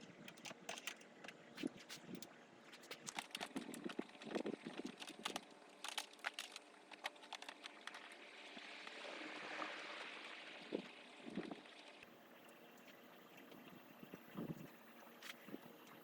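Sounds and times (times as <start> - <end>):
cable and plastic clicks and rustling: 0.0 - 8.2.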